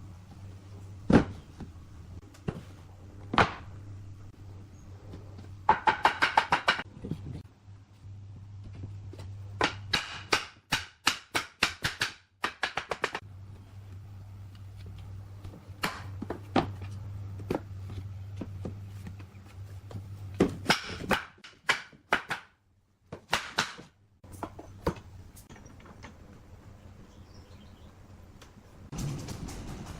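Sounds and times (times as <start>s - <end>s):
steady low hum: 0.0s - 5.8s, 6.8s - 10.7s, 13.2s - 21.4s.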